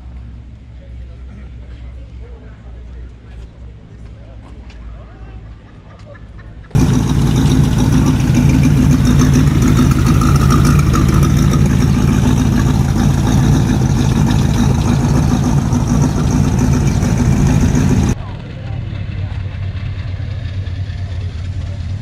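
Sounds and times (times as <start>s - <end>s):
car engine idling: 6.8s - 22.0s.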